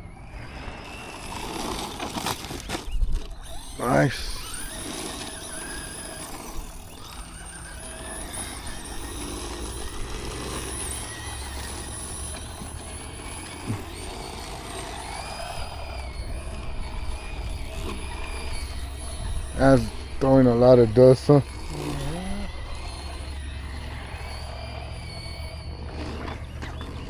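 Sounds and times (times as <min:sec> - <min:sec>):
electric motor whining: 0:00.0 - 0:27.0
tyres throwing dirt: 0:00.6 - 0:22.0.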